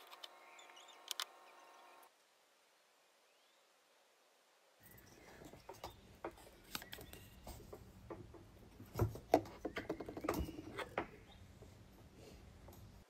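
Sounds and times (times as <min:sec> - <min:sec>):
small clicks: 0:00.0 - 0:02.1.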